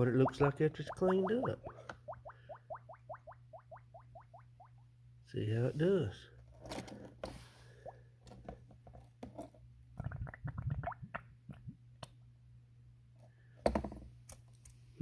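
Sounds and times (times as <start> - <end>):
water gurgling and plopping: 0.0 - 4.9, 10.0 - 11.7.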